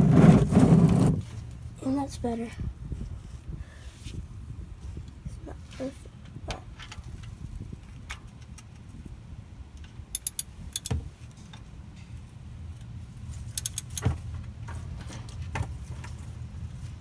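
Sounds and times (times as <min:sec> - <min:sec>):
small metal objects clinking: 0:10.2 - 0:10.9, 0:13.6 - 0:14.0.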